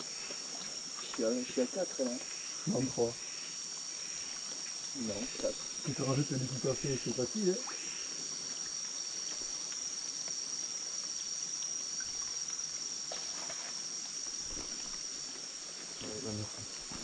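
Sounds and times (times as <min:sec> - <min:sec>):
insects chorus: 0:00.0 - 0:17.0
faint ticks: 0:08.6 - 0:12.7.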